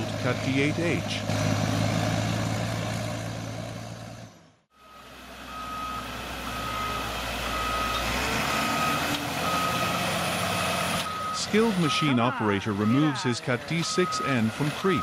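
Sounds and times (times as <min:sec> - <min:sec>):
dozer diesel engine running: 0:00.0 - 0:15.0
reversing alarm beeping: 0:04.7 - 0:15.0.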